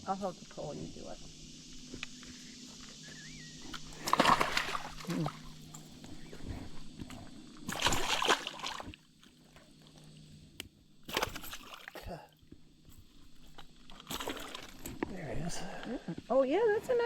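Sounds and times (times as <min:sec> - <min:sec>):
creek water splashing: 0:03.6 - 0:09.7, 0:11.0 - 0:12.2, 0:13.6 - 0:15.8.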